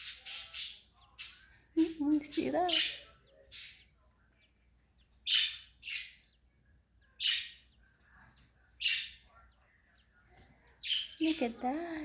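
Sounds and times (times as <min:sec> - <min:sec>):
budgie squawking: 0:00.0 - 0:03.9.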